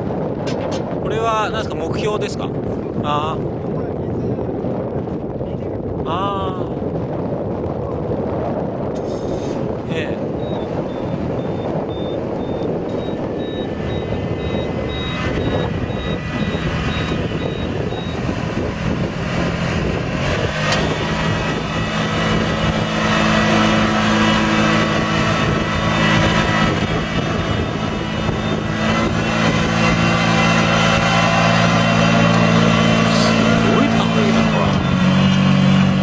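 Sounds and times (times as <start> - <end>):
engine drone: 8.9 - 36.0
faint high pulsing beep: 10.4 - 18.2.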